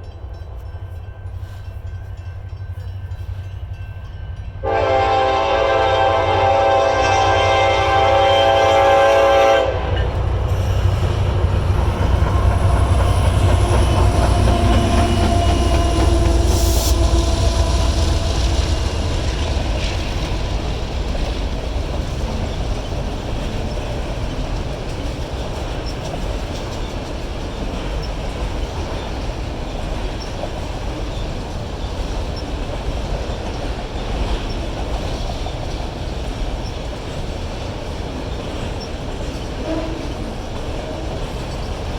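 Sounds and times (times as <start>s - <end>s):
train cars rumbling and clattering: 0.0s - 41.9s
locomotive horn chord: 4.6s - 11.0s, 13.2s - 19.5s.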